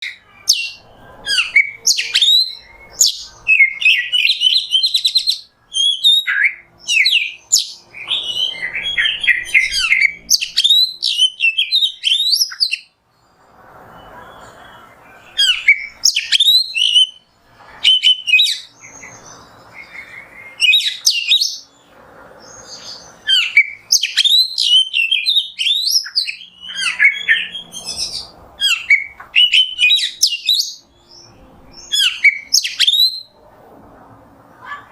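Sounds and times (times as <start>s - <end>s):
songbird whistles and trills: 0.0s - 13.0s, 13.9s - 21.7s, 22.5s - 33.4s.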